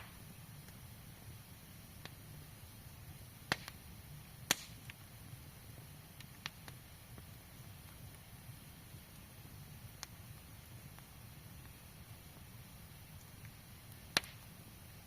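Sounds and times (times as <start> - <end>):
campfire burning: 0.0 - 15.0
faint low background noise: 0.0 - 15.0
sharp wood pops: 3.5 - 3.8, 4.5 - 5.0, 14.2 - 14.4.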